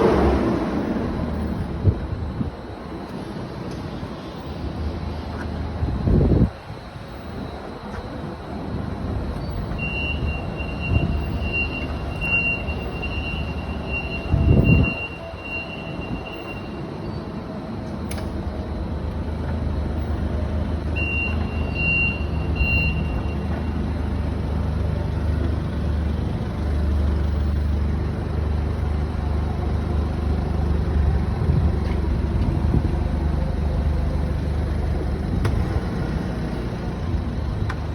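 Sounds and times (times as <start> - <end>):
forklift engine running: 0.0 - 37.9
reverse alarm beeping: 9.7 - 17.1, 20.8 - 23.8.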